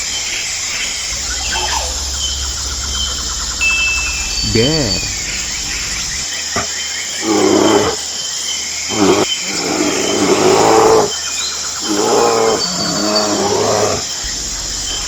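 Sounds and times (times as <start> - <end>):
faint bird chirps: 0.0 - 7.1.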